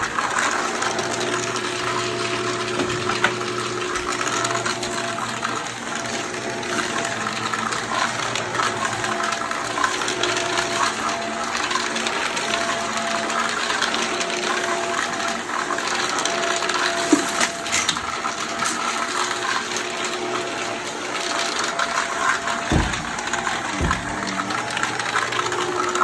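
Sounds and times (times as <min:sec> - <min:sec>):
vacuum cleaner running: 0:00.0 - 0:26.0
low thumps: 0:22.7 - 0:24.5.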